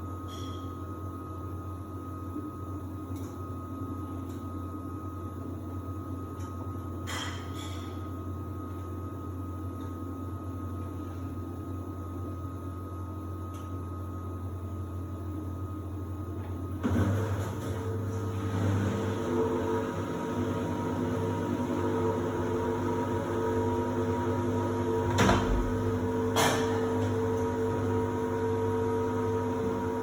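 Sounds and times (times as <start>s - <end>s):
washer-dryer humming: 13.5s - 30.0s.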